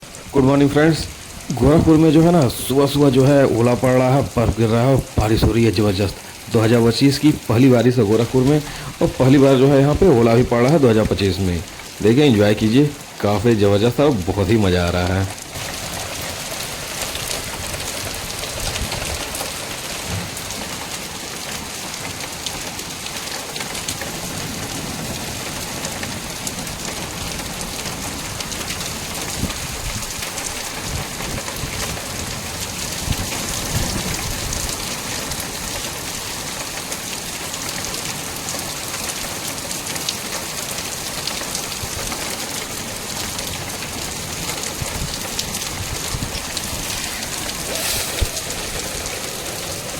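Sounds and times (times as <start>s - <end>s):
heavy rain: 0.0s - 49.9s
hailstones striking surfaces: 8.2s - 9.0s, 41.4s - 49.9s.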